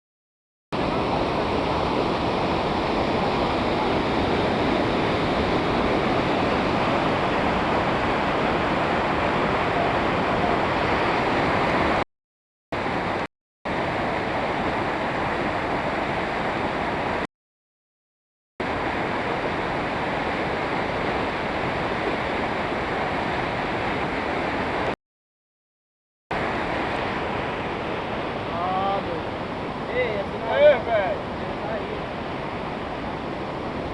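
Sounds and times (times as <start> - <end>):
waterfall rushing: 0.8 - 12.0.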